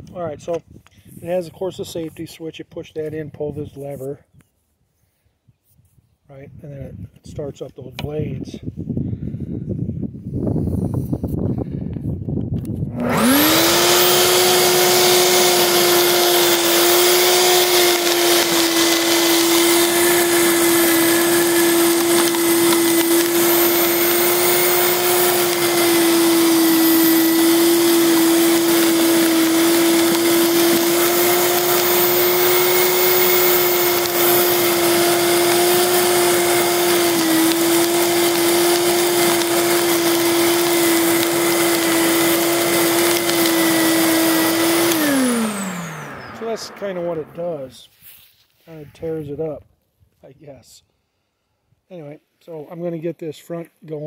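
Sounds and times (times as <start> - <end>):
lawn scarifier motor whine: 12.6 - 47.8
blades tearing turf: 12.9 - 48.8.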